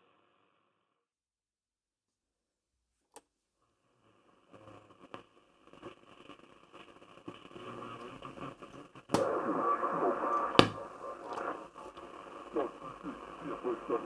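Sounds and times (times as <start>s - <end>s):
shortwave radio static: 7.3s - 14.0s.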